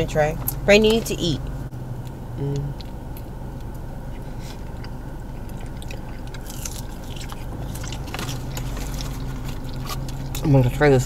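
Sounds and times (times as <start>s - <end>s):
car cabin hum: 0.0s - 11.0s
biting and chewing fries: 2.5s - 11.0s.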